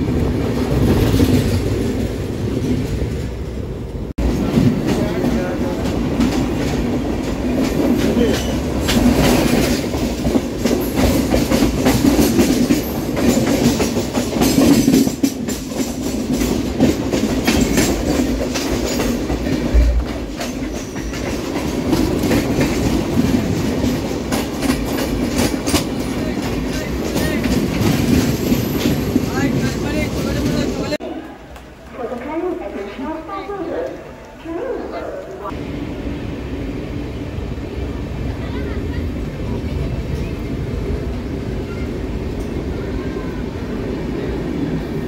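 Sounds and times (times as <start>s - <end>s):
train rumbling: 0.0s - 31.2s, 31.8s - 45.0s
wheels clacking over rail joints: 4.2s - 31.0s.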